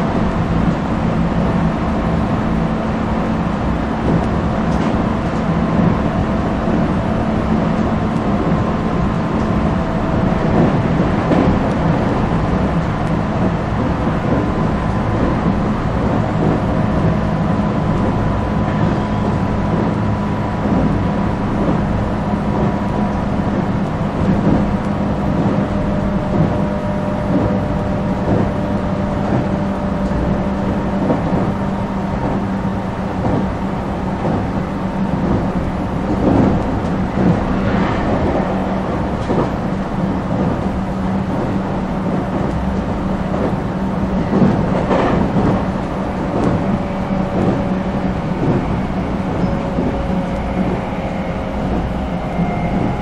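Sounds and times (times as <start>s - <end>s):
train rumbling: 0.0s - 53.0s
steady hum: 35.3s - 41.9s.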